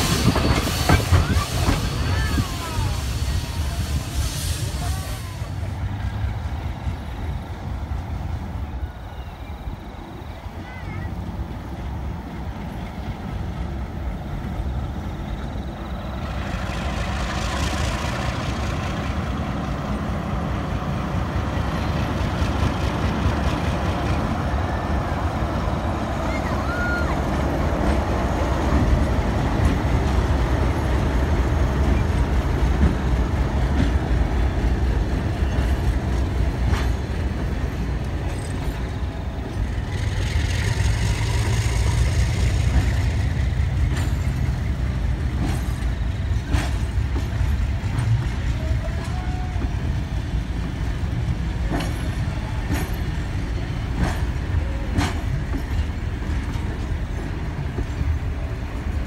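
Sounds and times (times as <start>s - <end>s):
hiss: 0.0s - 6.1s
train rumbling past: 0.0s - 59.0s
wheels clicking over rail joints: 25.7s - 59.0s.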